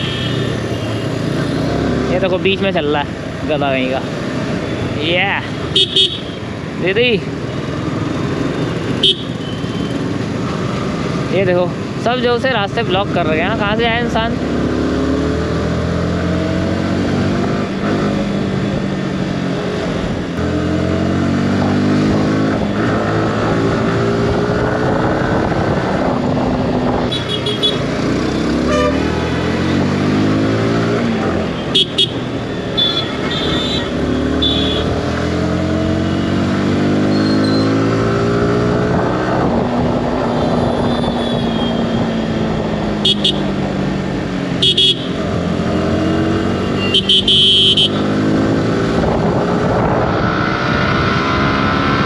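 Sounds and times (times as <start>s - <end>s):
vehicle horns beeping: 5.6s - 6.4s, 8.9s - 10.0s, 27.1s - 27.8s, 28.6s - 29.2s, 31.6s - 34.9s, 37.1s - 37.8s, 43.0s - 43.5s, 44.6s - 45.2s, 46.6s - 48.1s
motorcycle engine accelerating: 13.6s - 31.6s, 33.9s - 52.0s.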